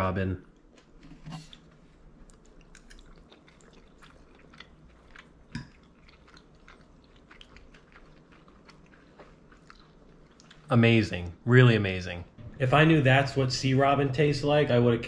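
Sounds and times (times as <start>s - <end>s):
person chewing: 0.5s - 10.7s.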